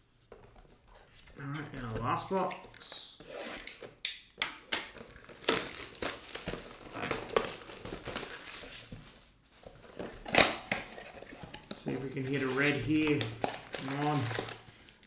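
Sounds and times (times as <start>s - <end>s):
plastic shrink-wrap crinkling: 4.8s - 15.0s.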